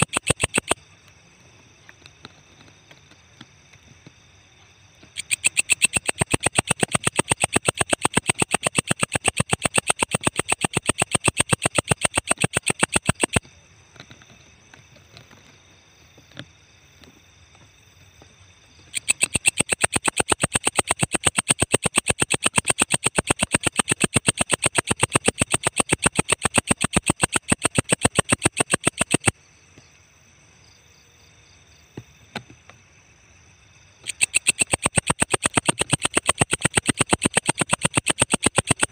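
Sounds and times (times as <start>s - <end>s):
katydid buzzy pulses: 0.0s - 0.9s, 5.0s - 13.5s, 18.8s - 29.4s, 33.9s - 38.9s.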